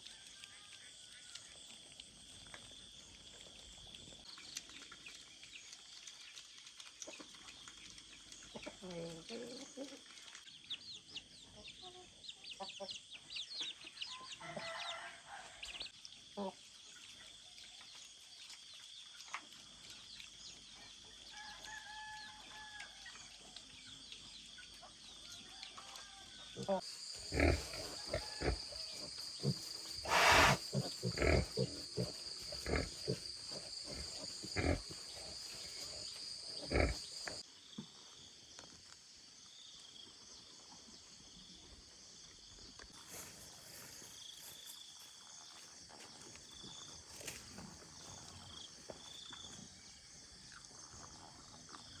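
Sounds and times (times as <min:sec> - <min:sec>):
faint rooster crowing: 0:14.1 - 0:15.8, 0:21.3 - 0:23.0, 0:25.5 - 0:26.8, 0:27.7 - 0:29.1
small chirps: 0:26.8 - 0:37.4.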